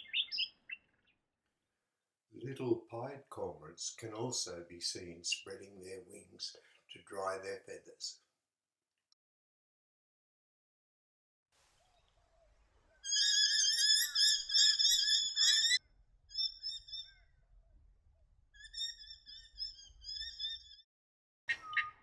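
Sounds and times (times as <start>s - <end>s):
birds warbling and chirping: 0.0s - 1.2s, 13.0s - 17.3s, 18.6s - 20.8s, 21.5s - 22.0s.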